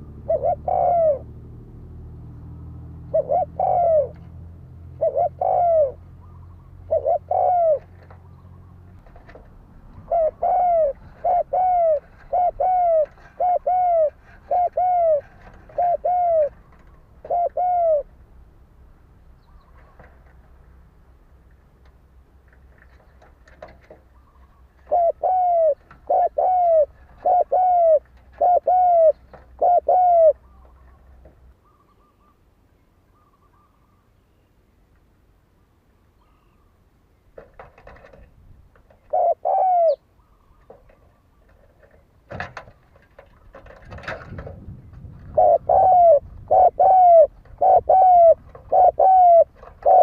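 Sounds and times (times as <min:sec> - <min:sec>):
dove cooing: 0:00.0 - 0:01.6, 0:02.9 - 0:18.2, 0:23.5 - 0:32.3, 0:38.9 - 0:41.9, 0:43.2 - 0:50.0.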